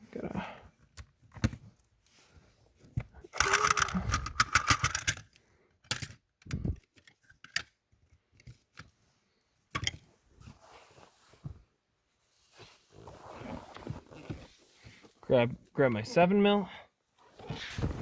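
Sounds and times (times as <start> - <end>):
metal tools clinking and rattling: 3.4 - 6.2.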